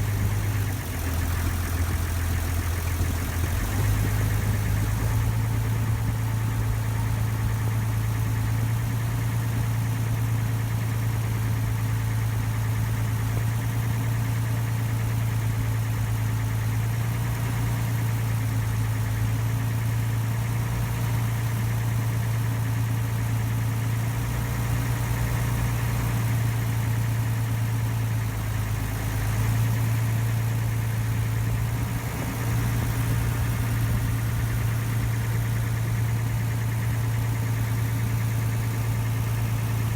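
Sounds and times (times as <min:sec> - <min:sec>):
boat engine humming: 0:00.0 - 0:06.4, 0:31.2 - 0:39.9.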